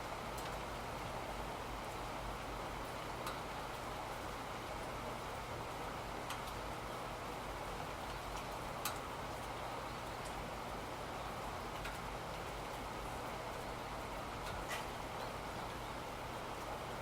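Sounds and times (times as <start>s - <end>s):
steady rain falling: 0.0s - 17.0s
sharp drip ticks: 8.0s - 10.4s.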